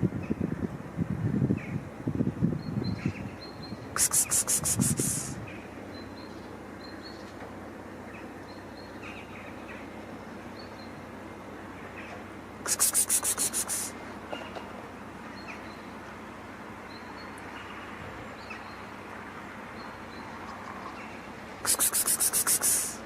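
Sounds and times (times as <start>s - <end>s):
fast rasping strokes: 4.0s - 5.4s, 12.7s - 14.0s, 21.6s - 23.0s
faint short chirps: 21.7s - 23.0s.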